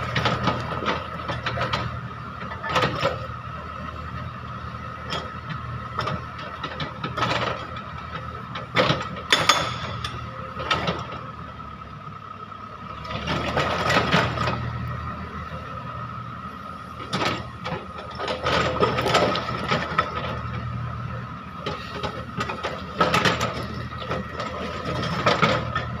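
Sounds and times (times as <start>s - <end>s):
diesel engine high whine: 0.0s - 26.0s
hydraulic breaker hammering: 9.2s - 10.3s
sharp metallic clanks: 9.3s - 10.4s.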